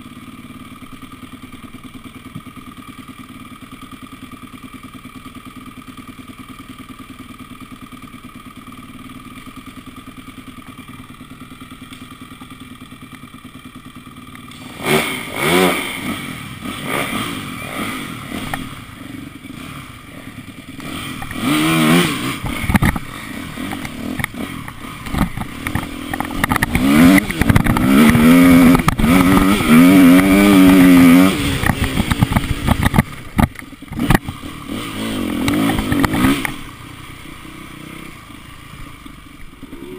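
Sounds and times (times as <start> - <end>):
motorbike engine idling and revving: 0.0 - 39.9.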